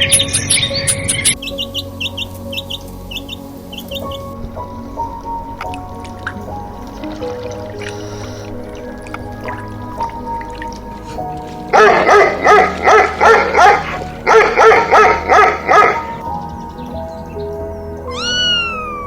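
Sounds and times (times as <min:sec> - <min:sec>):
background music: 0:00.0 - 0:19.0
dog yapping: 0:11.8 - 0:16.2, 0:18.1 - 0:19.0.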